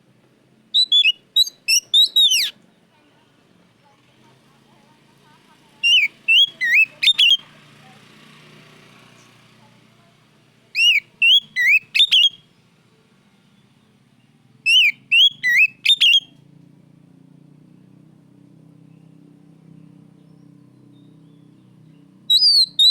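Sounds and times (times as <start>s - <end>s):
bird whistling song: 0.7s - 2.6s, 5.8s - 7.4s, 10.8s - 12.6s, 14.6s - 16.4s, 20.2s - 22.9s.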